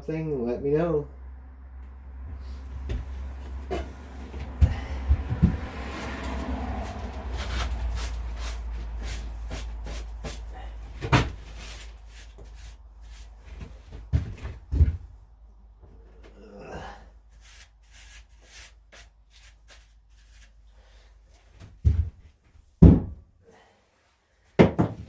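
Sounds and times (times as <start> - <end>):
knocks and clunks on tractor: 2.8 - 7.2.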